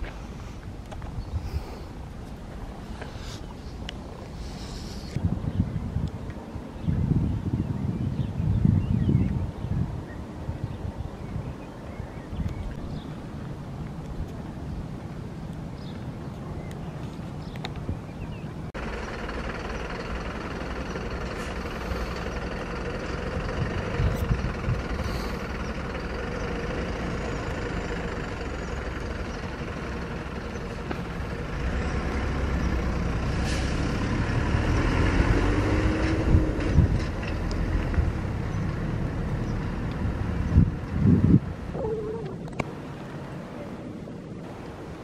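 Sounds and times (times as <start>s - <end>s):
train rumbling on rails: 18.8s - 41.5s.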